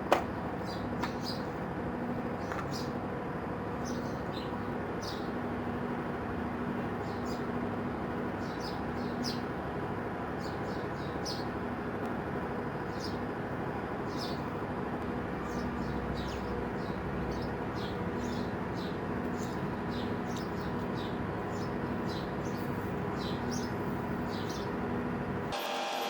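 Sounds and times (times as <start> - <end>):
steady low hum: 0.0 - 25.6
small birds chirping: 0.4 - 1.6, 2.3 - 3.0, 3.8 - 5.4, 6.8 - 7.6, 8.2 - 9.6, 10.3 - 11.7, 12.8 - 13.3, 14.0 - 14.6, 15.4 - 24.8.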